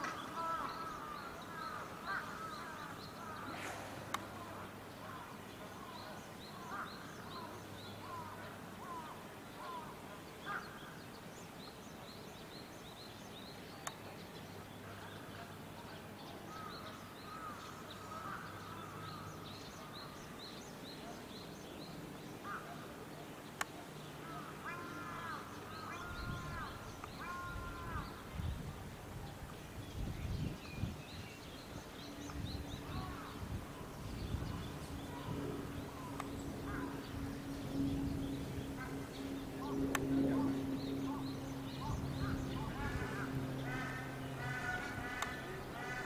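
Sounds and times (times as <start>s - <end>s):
loud arched bird calls: 0.0s - 11.0s, 16.5s - 21.2s, 24.2s - 28.4s, 30.8s - 46.0s
birds chirping: 0.0s - 46.0s.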